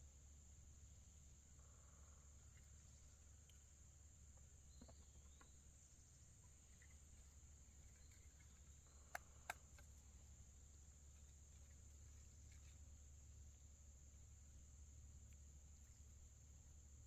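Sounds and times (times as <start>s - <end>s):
sharp clicks: 9.0s - 9.9s.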